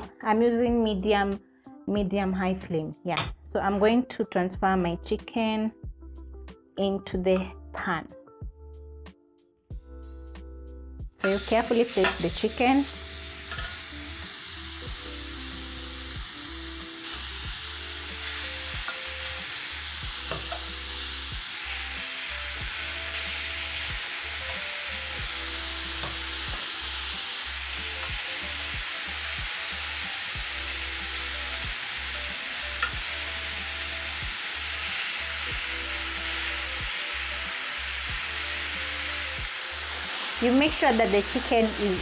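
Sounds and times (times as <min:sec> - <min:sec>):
background music: 0:00.0 - 0:42.0
metal tongs clicking on pan: 0:11.2 - 0:12.3, 0:13.5 - 0:13.8, 0:20.3 - 0:20.7
chicken sizzling on a grill pan: 0:11.2 - 0:42.0.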